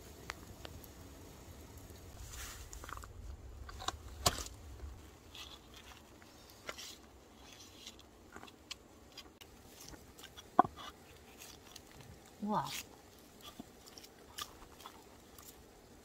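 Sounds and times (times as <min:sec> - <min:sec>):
chewing food: 0:05.2 - 0:15.8.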